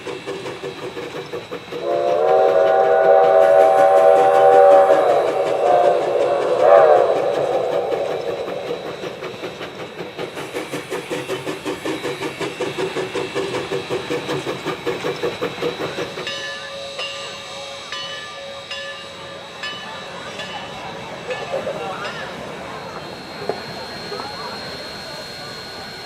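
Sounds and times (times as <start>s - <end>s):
steam train rhythmic beat: 0.0s - 26.0s
steam train whistle: 1.7s - 10.9s.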